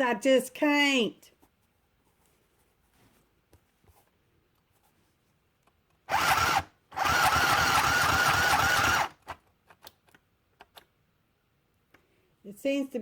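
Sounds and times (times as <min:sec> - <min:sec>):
sewing machine stitching: 0:06.1 - 0:09.4.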